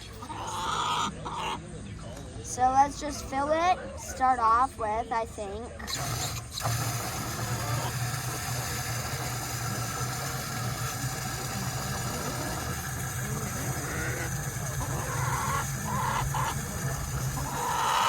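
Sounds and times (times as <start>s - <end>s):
chickens clucking: 0.0s - 4.3s, 5.1s - 18.0s
low mechanical hum: 4.8s - 18.0s
water running into container: 5.9s - 18.0s.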